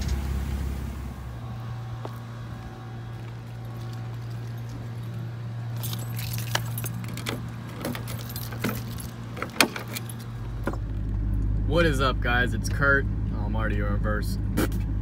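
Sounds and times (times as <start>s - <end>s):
truck engine running: 0.0s - 15.0s
sharp clicks and jingles: 3.5s - 10.9s.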